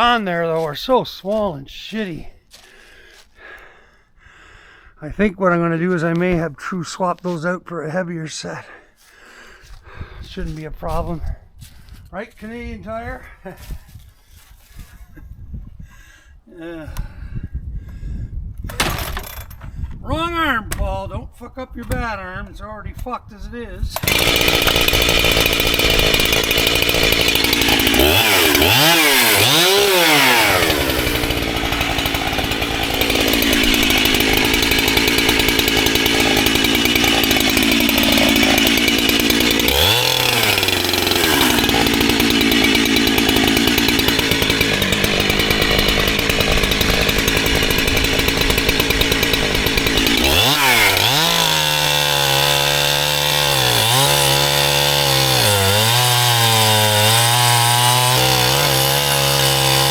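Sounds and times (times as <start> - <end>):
chainsaw cutting firewood: 18.7 - 19.6, 24.0 - 59.9.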